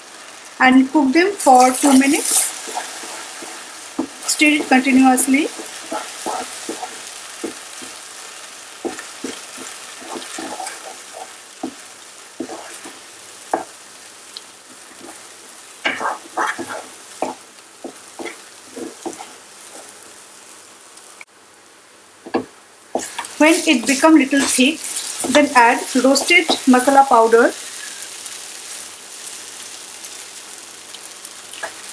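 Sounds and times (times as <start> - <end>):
paste sizzling in hot oil: 0.0 - 21.3, 22.0 - 31.9
spatula scraping a pan: 1.5 - 13.9, 14.6 - 20.2, 23.0 - 30.4.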